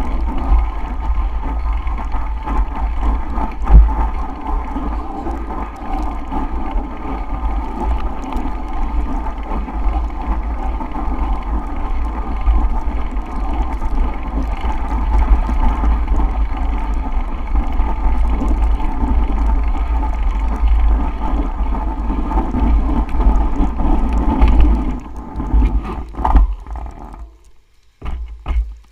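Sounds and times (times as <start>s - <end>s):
bicycle rolling through snow: 0.0s - 28.9s
wind rumbling on microphone: 0.0s - 28.9s
knocks: 28.0s - 28.8s.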